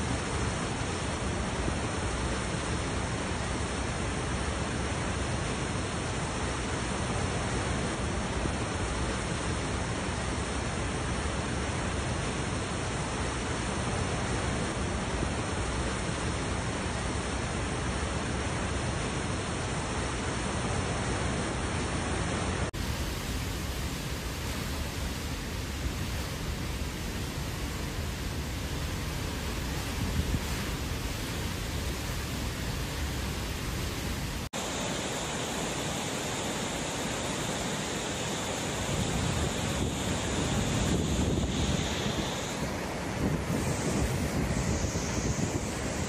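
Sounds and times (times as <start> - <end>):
hurricane-force wind rushing: 18.6 - 46.0.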